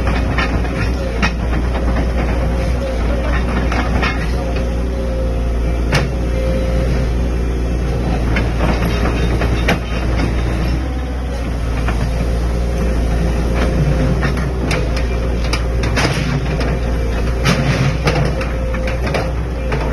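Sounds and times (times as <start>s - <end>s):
metal clanks and knocks: 0.0s - 4.8s, 8.1s - 11.1s, 13.3s - 19.9s
constant whine: 0.0s - 19.9s
excavator diesel engine running: 0.0s - 19.9s.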